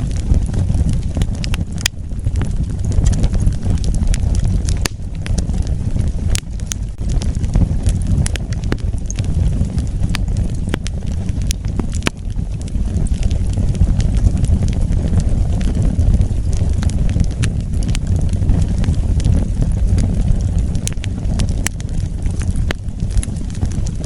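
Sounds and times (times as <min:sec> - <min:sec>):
low rumble of flames: 0:00.0 - 0:24.0
wood crackling and popping: 0:00.0 - 0:24.0.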